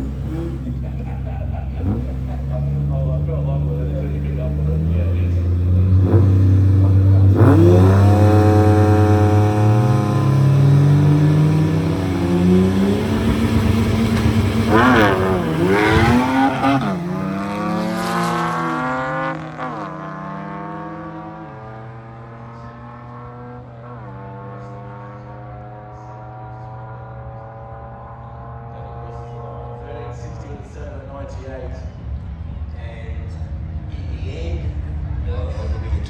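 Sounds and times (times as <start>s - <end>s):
truck engine revving hard: 0.0s - 25.4s.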